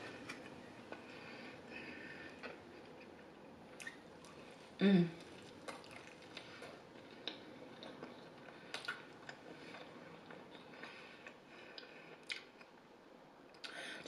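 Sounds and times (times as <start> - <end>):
person chewing: 5.2 - 12.7.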